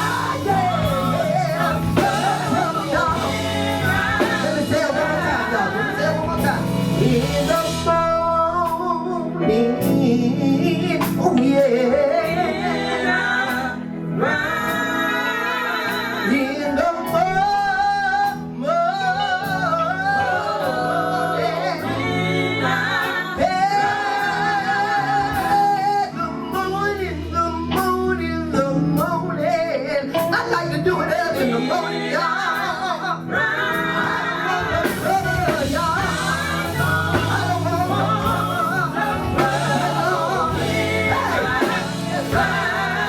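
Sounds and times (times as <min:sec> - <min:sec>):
steady bass line: 0:00.0 - 0:14.9, 0:30.2 - 0:43.0
gospel band playing: 0:00.0 - 0:43.0
lead singer holding long notes: 0:00.0 - 0:43.0.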